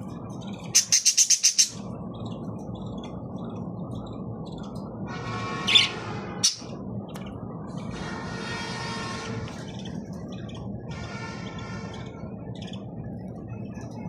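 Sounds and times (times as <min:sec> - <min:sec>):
parrot chirping and squawking: 0:00.8 - 0:01.8, 0:05.6 - 0:06.7.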